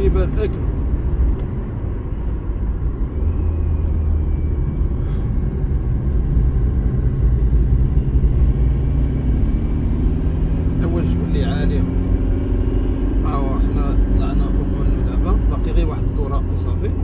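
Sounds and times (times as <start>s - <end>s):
engine and road rumble: 0.0s - 17.0s
faint engine hum: 0.0s - 17.0s.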